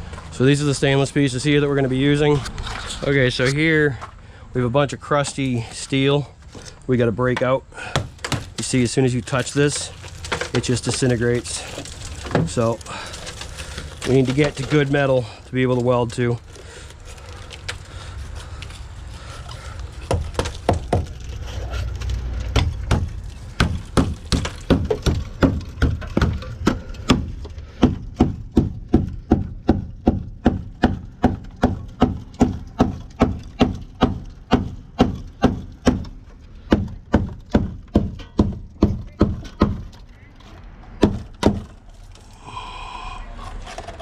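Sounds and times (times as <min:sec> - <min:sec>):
low rumble: 0:00.0 - 0:04.8, 0:40.0 - 0:44.0.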